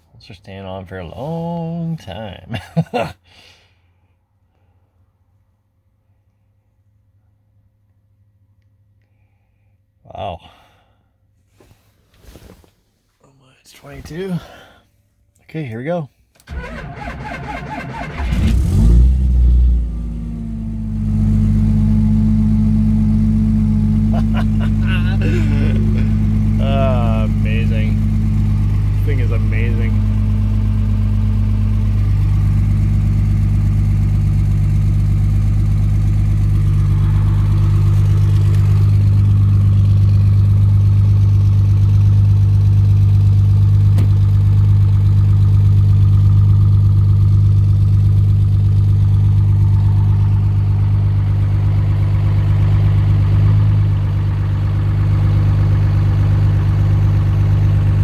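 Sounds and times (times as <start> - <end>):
diesel engine idling: 16.5 - 58.0.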